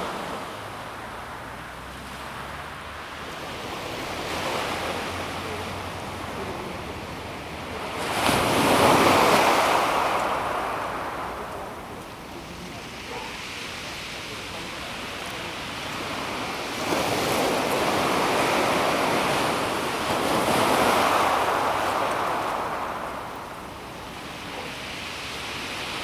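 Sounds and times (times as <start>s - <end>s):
waves washing on pebble beach: 3.2s - 26.0s
wave breaking: 15.9s - 23.7s.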